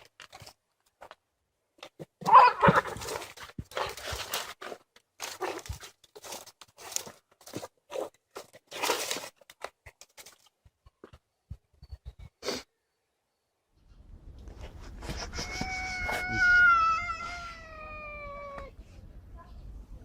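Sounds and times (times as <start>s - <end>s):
cat crying: 15.4s - 18.7s.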